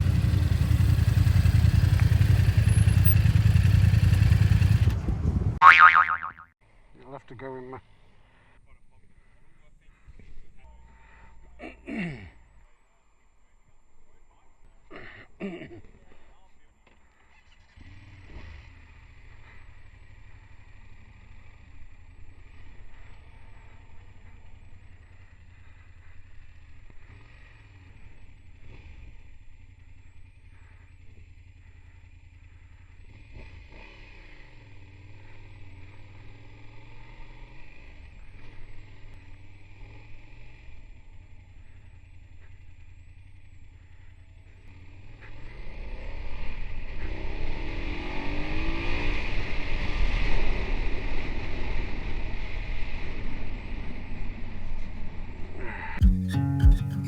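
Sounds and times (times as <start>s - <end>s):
motorcycle engine running: 0.0s - 6.4s, 17.4s - 48.3s, 56.0s - 57.0s.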